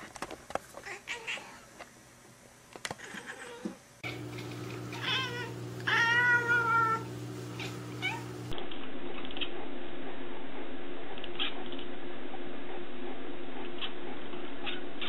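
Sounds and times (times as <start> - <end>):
cat meowing: 4.9 - 8.4
cat chirping: 7.6 - 8.4.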